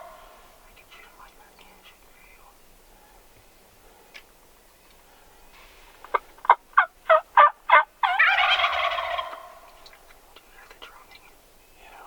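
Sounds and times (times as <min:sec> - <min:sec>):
turkey gobbling: 0:00.0 - 0:00.4, 0:06.0 - 0:10.0
turkey yelps: 0:06.1 - 0:09.7.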